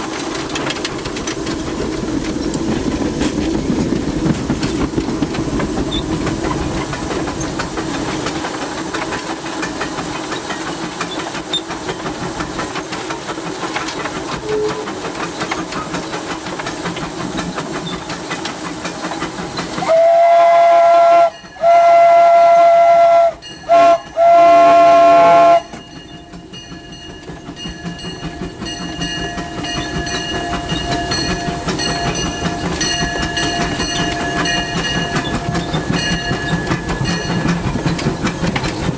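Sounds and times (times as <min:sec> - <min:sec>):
steam locomotive running: 0:00.0 - 0:38.9
steam whistle blasts: 0:14.4 - 0:14.9, 0:19.8 - 0:25.8.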